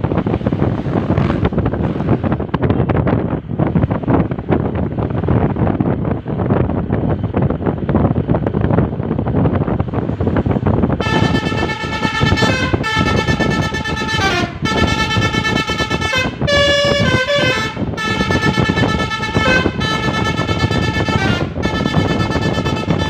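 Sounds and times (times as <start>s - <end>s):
road and engine rumble: 0.0s - 23.0s
multi-tone bus horn tune: 11.0s - 23.0s.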